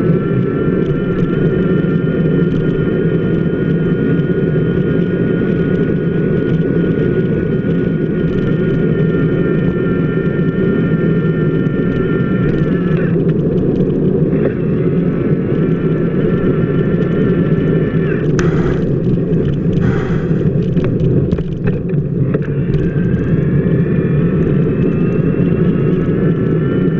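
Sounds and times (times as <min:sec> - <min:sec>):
high whine: 0:18.4 - 0:20.6.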